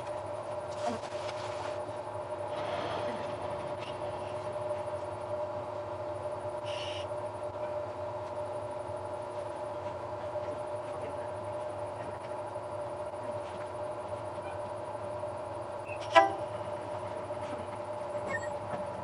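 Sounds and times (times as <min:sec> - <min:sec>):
train equipment idling hum: 0:00.0 - 0:19.0
short high squeak: 0:18.2 - 0:18.6.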